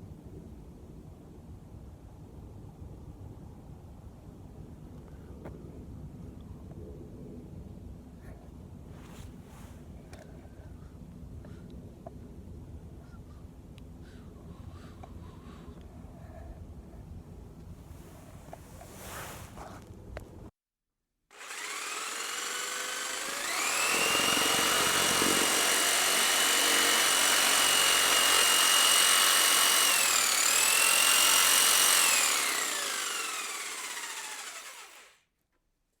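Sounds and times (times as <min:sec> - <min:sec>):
electric motor whine: 0:21.4 - 0:35.2.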